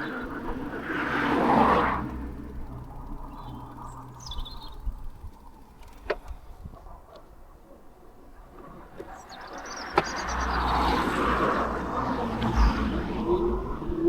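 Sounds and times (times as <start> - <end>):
vehicle passing: 0.0 - 5.7, 8.8 - 14.0
low steady rumble: 0.0 - 7.0, 10.4 - 14.0
bird chirping: 2.1 - 5.6, 9.0 - 14.0.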